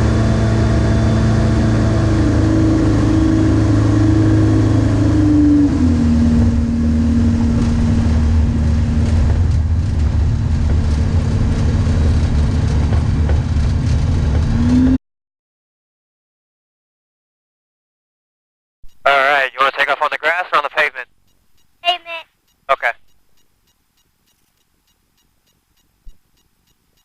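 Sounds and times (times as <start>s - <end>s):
aircraft engine and propeller: 0.0s - 14.7s.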